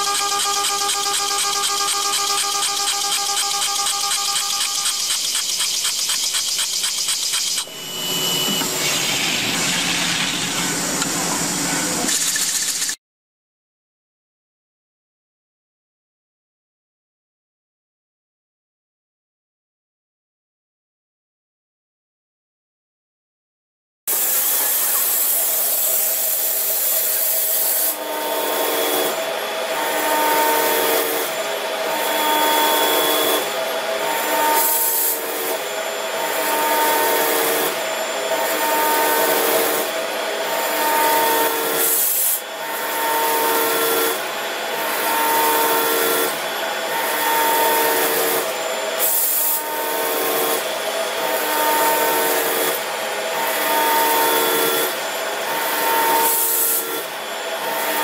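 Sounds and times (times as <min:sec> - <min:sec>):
hissing cutting noise: 0:00.0 - 0:13.0
steady machine whine: 0:00.0 - 0:13.0, 0:24.1 - 0:58.0.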